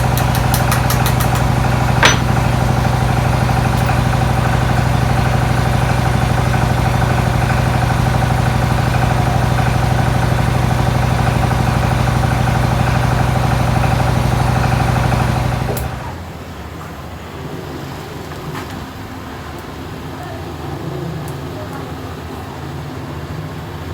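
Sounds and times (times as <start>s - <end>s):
engine idling: 0.0s - 16.5s.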